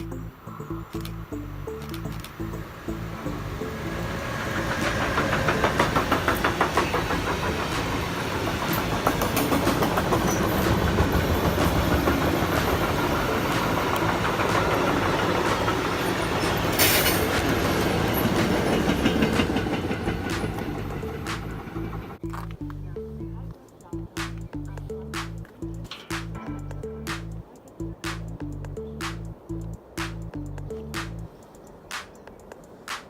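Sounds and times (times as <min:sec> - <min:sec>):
train wheels clattering on rails: 0:03.8 - 0:22.2.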